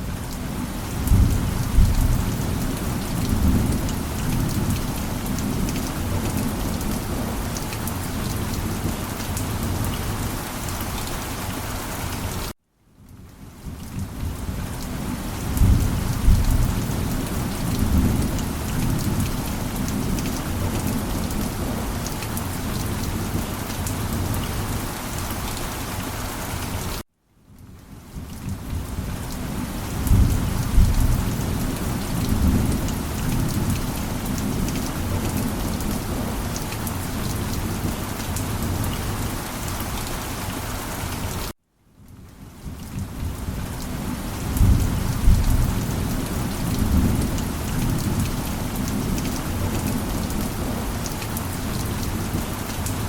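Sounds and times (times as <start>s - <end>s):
heavy rain: 0.0s - 27.0s, 27.6s - 53.0s
rolling thunder: 15.5s - 19.3s, 44.5s - 48.2s.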